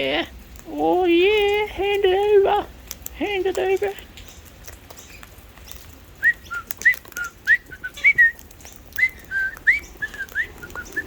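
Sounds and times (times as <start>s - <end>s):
swooping whistled notes: 9.0s - 11.0s.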